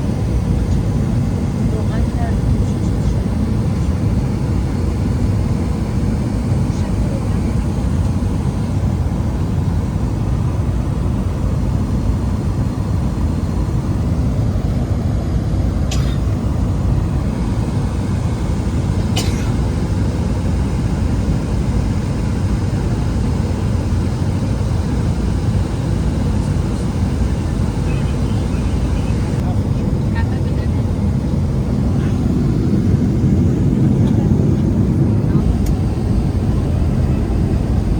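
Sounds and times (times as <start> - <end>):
airplane cabin rumble: 0.0 - 37.9.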